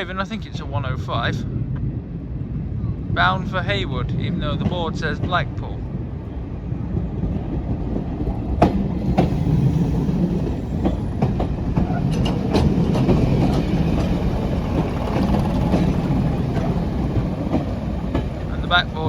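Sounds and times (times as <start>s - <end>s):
diesel train rumbling past: 0.0s - 19.0s
wheels clicking over rail joints: 7.2s - 19.0s.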